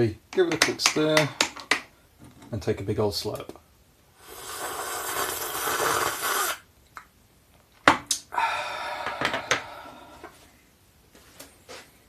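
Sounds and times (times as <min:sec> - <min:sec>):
loud slurp of soup: 0:04.2 - 0:06.6.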